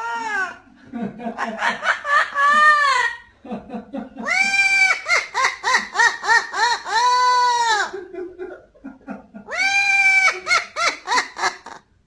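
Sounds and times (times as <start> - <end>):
parrot calling loudly: 4.3 - 8.0, 9.5 - 11.8.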